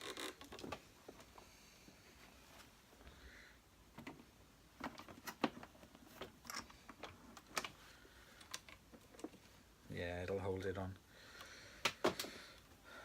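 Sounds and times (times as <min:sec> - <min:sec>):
hard plastic parts clicking and knocking: 0:11.8 - 0:12.4.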